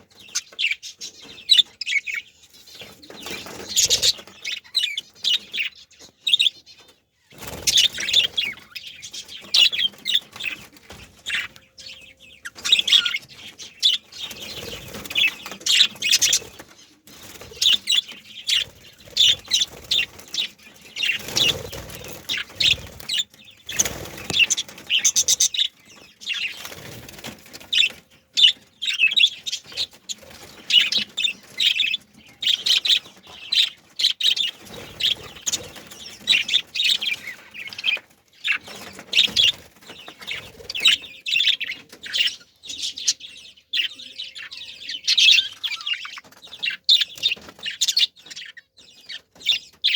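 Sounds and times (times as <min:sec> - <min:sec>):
budgerigars chirping and chattering: 0:00.0 - 0:49.9
wings flapping: 0:07.3 - 0:11.6, 0:12.4 - 0:25.6, 0:26.4 - 0:28.1.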